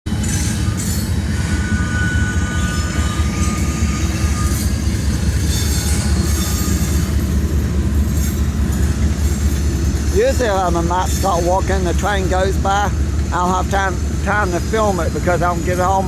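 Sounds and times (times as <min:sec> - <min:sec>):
train rumbling over bridge: 0:00.0 - 0:16.0.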